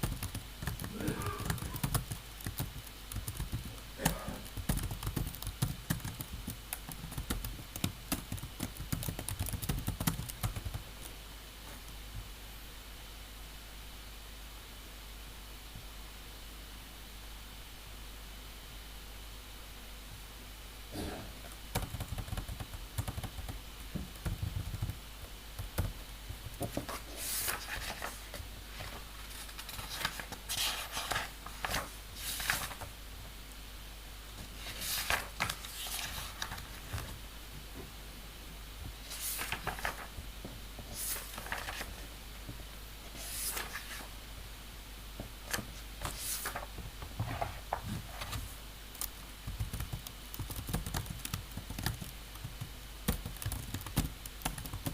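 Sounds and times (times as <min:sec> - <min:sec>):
low room hum: 0:00.0 - 0:54.9
scraping rustling strokes: 0:40.9 - 0:42.0, 0:43.1 - 0:44.1.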